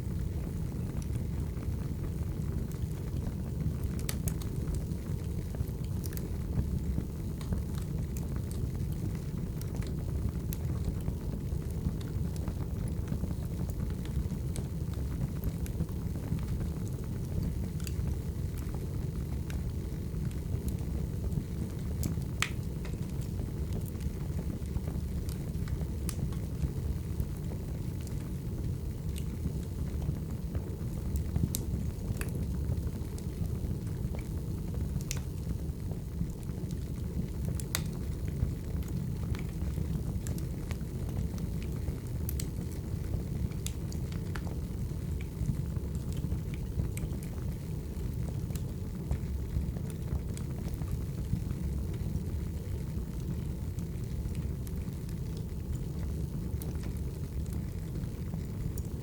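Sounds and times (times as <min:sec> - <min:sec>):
crackles and pops of burning logs: 0:00.0 - 0:59.0
roar of fire flames: 0:00.0 - 0:59.0.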